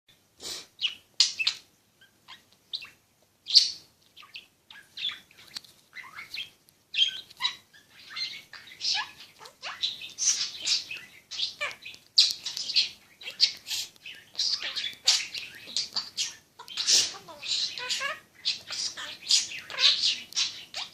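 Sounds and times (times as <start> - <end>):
parrot chirping and squawking: 0.8 - 20.9.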